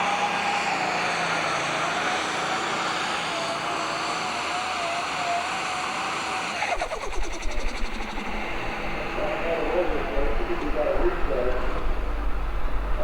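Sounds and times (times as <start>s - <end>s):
wavering whine: 0.0s - 13.0s
tractor engine running: 6.6s - 13.0s
low rumble with rapid flutter: 6.7s - 13.0s.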